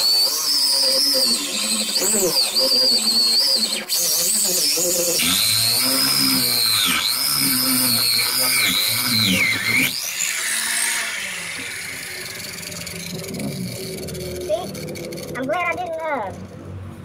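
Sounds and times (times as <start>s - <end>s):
power grinder whining: 0.0s - 16.9s.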